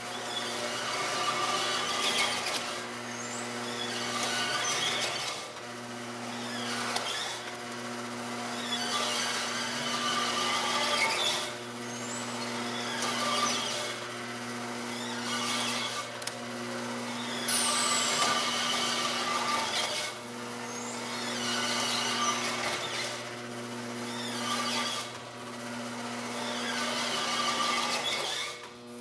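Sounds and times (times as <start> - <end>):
electric motor hum: 0.0 - 29.0
mechanical whirr: 0.0 - 29.0
high squeak: 8.6 - 14.0, 17.2 - 23.2, 24.1 - 25.2, 26.4 - 28.6.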